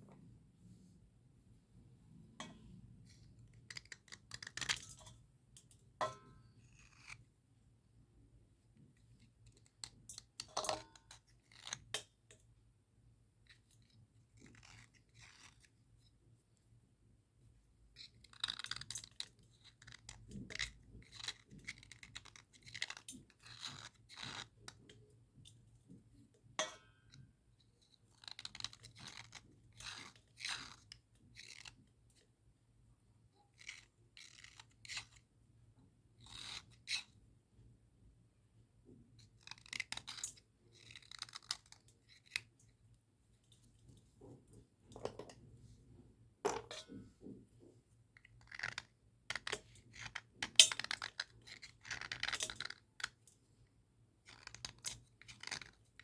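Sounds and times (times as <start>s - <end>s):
slate pencils scraping and crunching: 48.4s - 53.1s, 54.3s - 56.0s.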